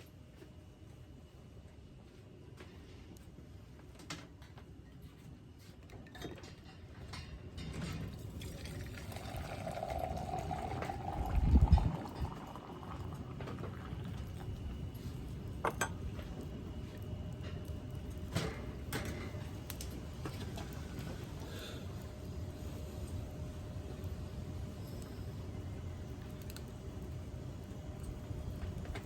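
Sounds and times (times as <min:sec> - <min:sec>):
kettle hissing on a stove: 0:08.1 - 0:29.0.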